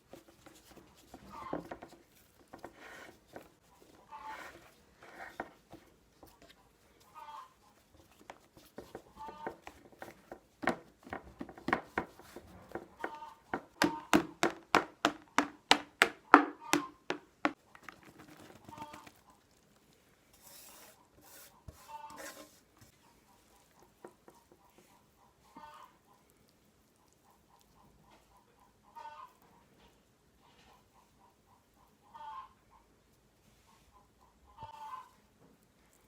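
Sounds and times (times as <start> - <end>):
kitchen handling knocks: 13.5 - 17.6
sharp evenly spaced knocks: 13.5 - 17.6.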